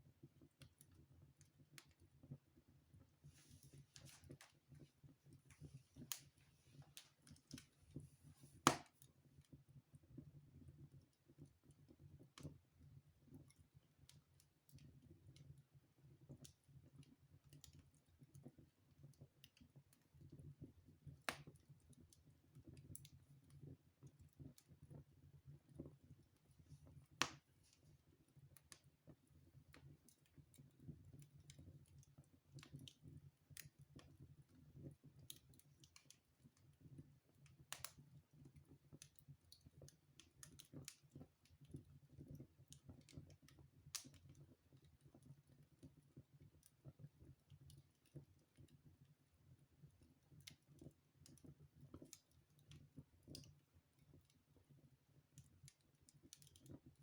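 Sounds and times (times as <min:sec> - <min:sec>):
wood fire crackling: 0:00.3 - 0:10.0, 0:19.2 - 0:49.2, 0:49.8 - 0:57.0.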